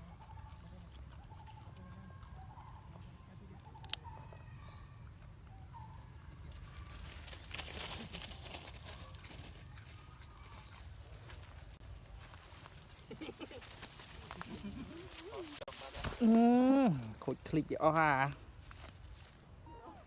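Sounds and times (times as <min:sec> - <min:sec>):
crackling rustle: 0:06.5 - 0:20.0
faint animal calls: 0:19.5 - 0:20.0.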